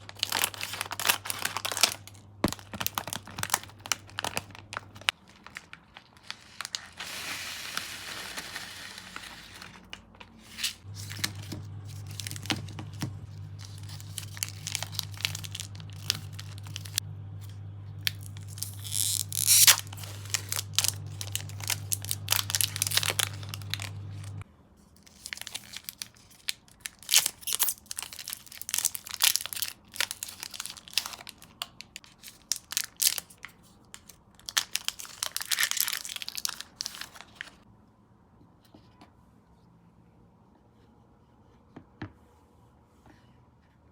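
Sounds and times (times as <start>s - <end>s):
plastic tearing: 0.0s - 17.0s, 18.0s - 24.4s, 25.0s - 37.6s
plastic packaging crinkling: 0.0s - 24.4s, 25.0s - 37.6s
steady low hum: 10.8s - 24.4s.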